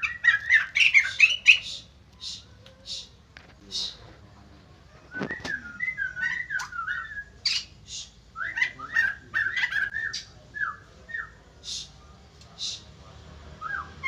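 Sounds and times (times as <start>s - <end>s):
bird whistling and squawking: 0.0s - 3.1s, 5.0s - 11.9s, 13.6s - 14.0s.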